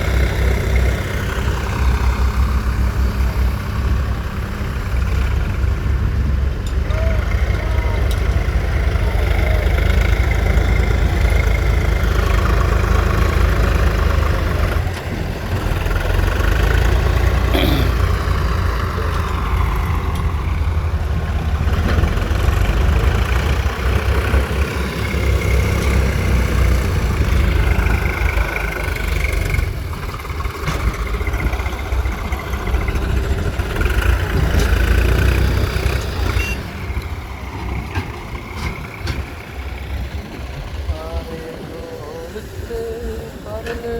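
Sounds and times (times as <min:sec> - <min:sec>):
diesel engines rumbling: 0:00.0 - 0:43.9.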